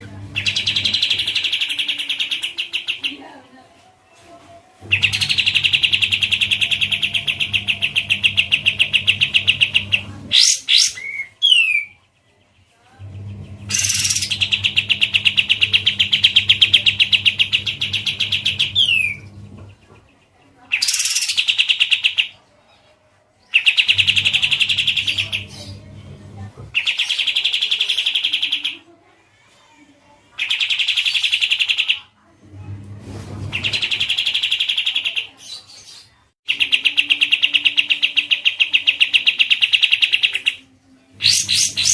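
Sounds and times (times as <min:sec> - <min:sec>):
low hum: 0:12.9 - 0:20.0
songbird trilling: 0:13.7 - 0:19.2.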